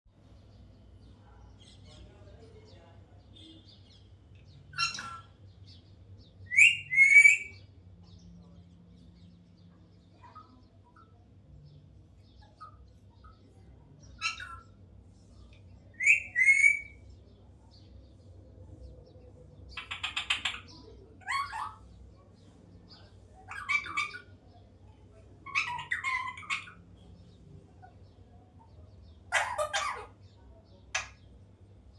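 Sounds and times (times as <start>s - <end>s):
parakeet squawking: 4.7s - 5.4s, 14.2s - 14.8s, 19.8s - 21.9s, 23.5s - 24.3s, 25.4s - 26.8s, 29.3s - 30.2s.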